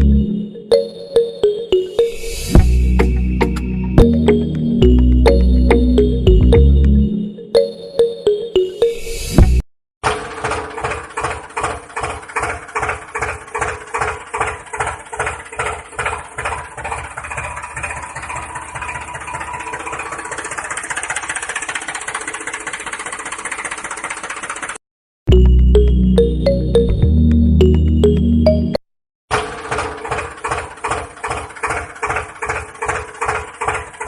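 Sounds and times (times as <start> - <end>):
tractor engine chugging: 10.0 - 25.9, 29.3 - 34.0.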